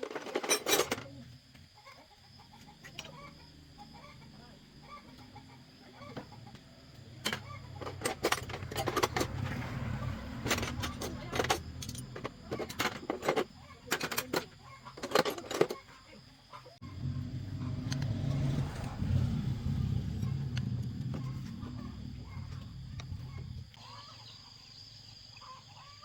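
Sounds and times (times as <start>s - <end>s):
metallic clinks and knocks: 0.0s - 1.1s, 7.2s - 9.6s, 10.4s - 15.9s.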